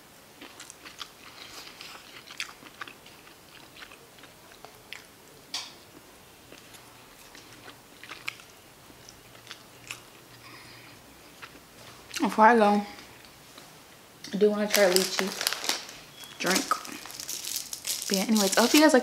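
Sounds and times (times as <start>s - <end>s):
person chewing food: 0.4s - 5.2s, 5.9s - 12.2s, 15.2s - 18.8s.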